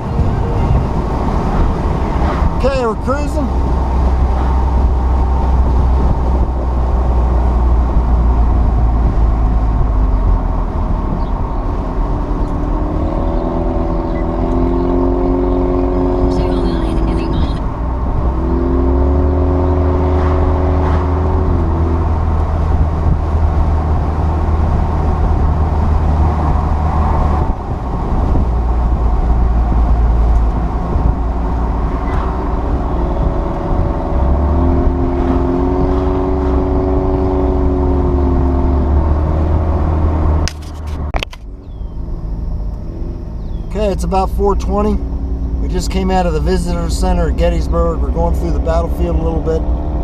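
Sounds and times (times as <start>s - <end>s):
car engine hum: 0.0s - 50.0s
wind and road noise: 0.0s - 50.0s.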